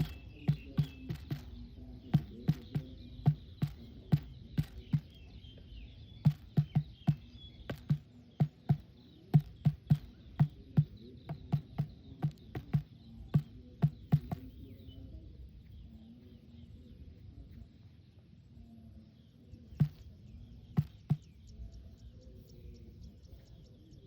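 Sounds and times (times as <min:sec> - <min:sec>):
sharp knocks: 0:00.0 - 0:05.2, 0:06.2 - 0:14.5, 0:20.8 - 0:21.3
faint bird or insect chirps: 0:00.0 - 0:24.0.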